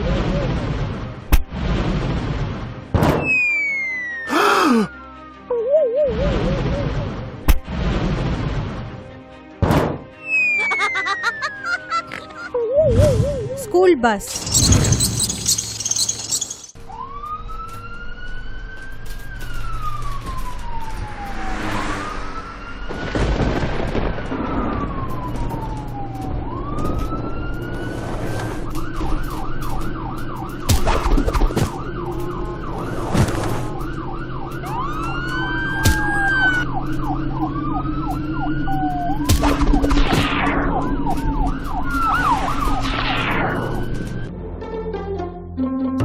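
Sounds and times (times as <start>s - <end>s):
emergency siren wailing: 3.3s - 7.2s, 10.2s - 13.6s, 15.6s - 44.4s.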